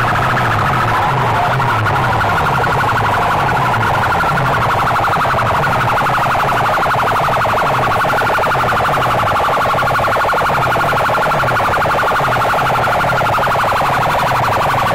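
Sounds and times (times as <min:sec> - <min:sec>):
loud siren-like music from speakers: 0:00.0 - 0:14.9.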